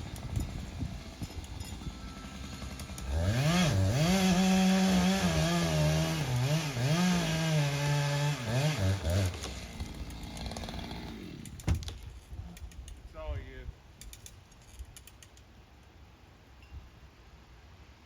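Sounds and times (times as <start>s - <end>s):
chainsaw cutting wood: 0.0s - 12.1s.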